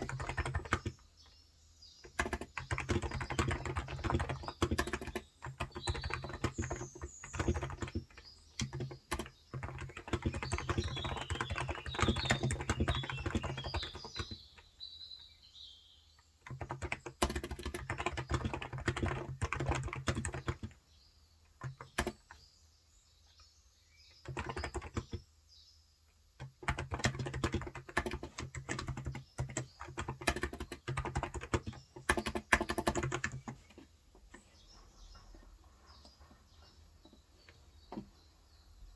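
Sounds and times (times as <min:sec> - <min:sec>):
fast typing on keyboard: 0:00.0 - 0:01.0, 0:02.0 - 0:14.7, 0:16.4 - 0:20.8, 0:21.5 - 0:22.4, 0:24.2 - 0:25.2, 0:26.4 - 0:33.9
birds chirping: 0:00.0 - 0:26.0, 0:26.6 - 0:38.9.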